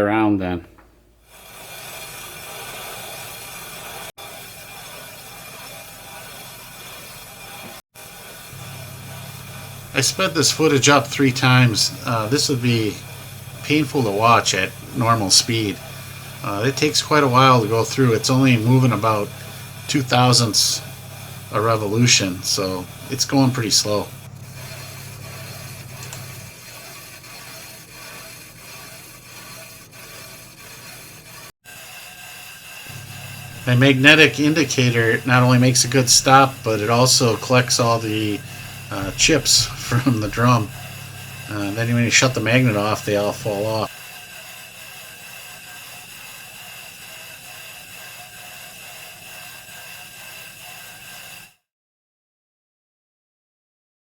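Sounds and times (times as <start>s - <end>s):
lathe tool scraping metal: 1.2s - 51.6s
low hum: 8.6s - 26.5s, 32.9s - 43.6s.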